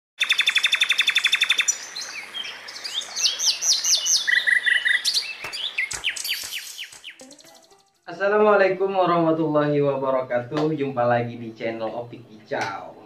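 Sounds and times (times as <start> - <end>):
bird chirps and whistles: 0.2 - 1.8, 3.2 - 7.8
bird fast trill: 0.2 - 1.9, 3.2 - 8.0.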